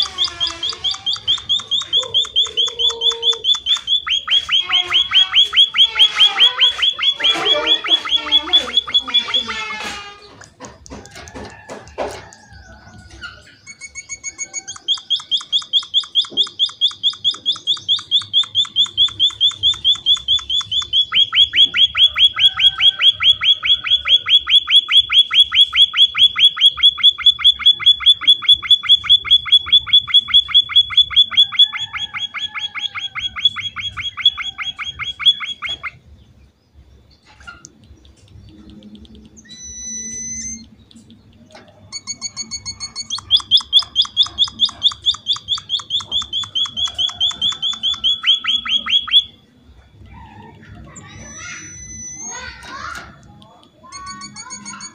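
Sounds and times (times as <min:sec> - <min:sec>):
finch calling rapid high notes: 0:00.0 - 0:10.2, 0:13.6 - 0:36.0, 0:41.8 - 0:49.4, 0:50.9 - 0:53.1.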